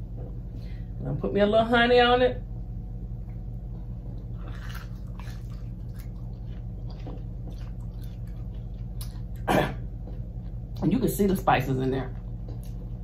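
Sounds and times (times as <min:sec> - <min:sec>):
steady low hum: 0:00.0 - 0:13.0
crunchy chewing close up: 0:03.8 - 0:10.8.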